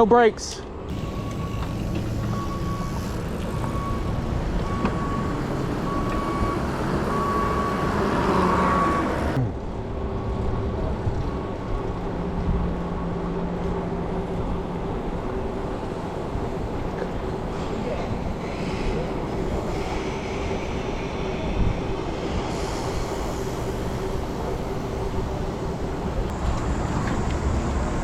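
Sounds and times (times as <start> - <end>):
street traffic noise: 0.0 - 28.0.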